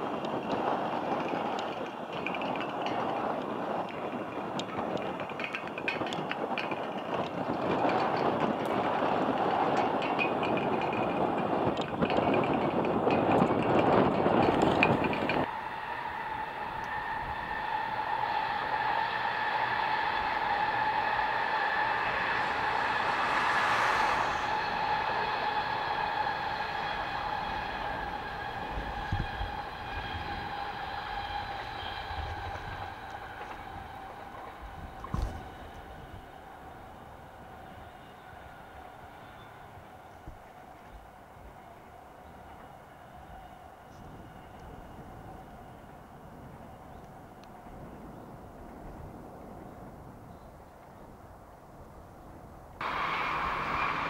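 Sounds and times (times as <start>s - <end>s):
train rumbling on tracks: 0.0s - 54.0s.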